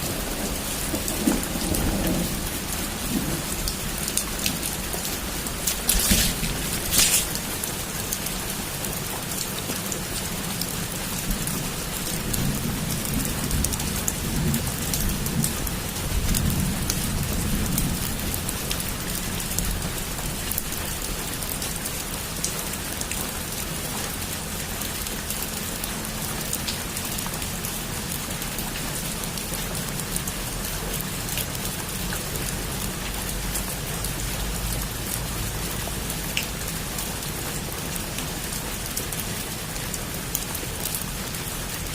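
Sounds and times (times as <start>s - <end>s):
thunder rumbling: 0.0s - 7.9s
heavy rain falling: 0.0s - 41.9s.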